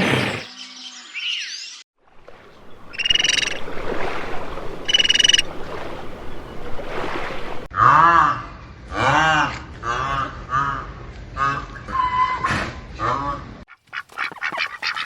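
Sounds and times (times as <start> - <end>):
buzzy pulsed animal calls: 2.9 - 3.6, 4.8 - 5.5.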